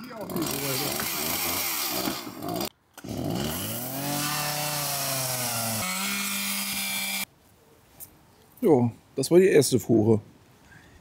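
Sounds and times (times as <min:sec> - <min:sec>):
chainsaw cutting wood: 0:00.0 - 0:07.3.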